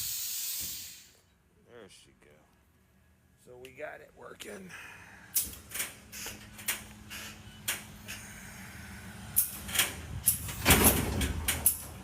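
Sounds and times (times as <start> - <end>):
sharp clicks and knocks: 9.4 - 12.0.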